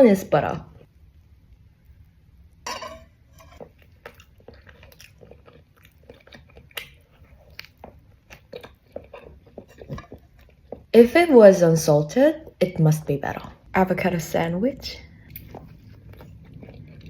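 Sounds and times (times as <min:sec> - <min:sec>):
chewing with mouth clicks: 0:03.6 - 0:10.9, 0:15.3 - 0:17.0.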